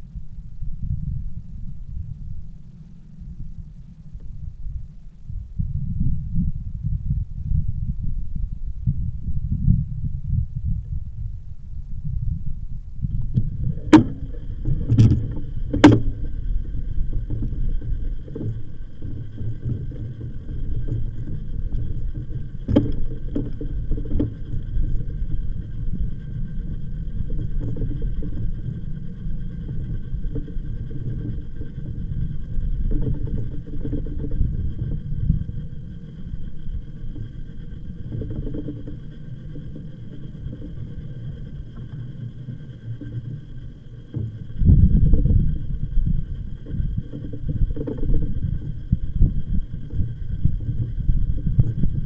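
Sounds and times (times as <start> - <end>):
faint high whine: 0.0 - 52.0
wind and tyre rumble: 0.0 - 52.0
bike knocks and rattles: 13.5 - 19.1.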